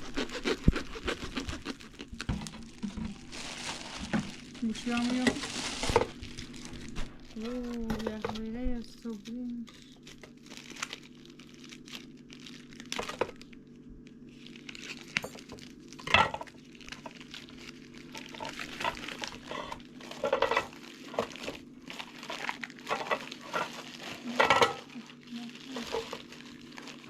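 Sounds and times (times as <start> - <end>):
plastic rustling: 0.0 - 27.0
steady low hum: 0.0 - 27.0.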